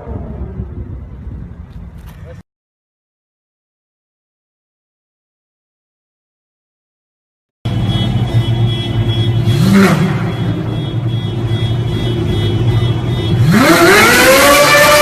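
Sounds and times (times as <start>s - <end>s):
car engine idling and revving: 7.7s - 15.0s.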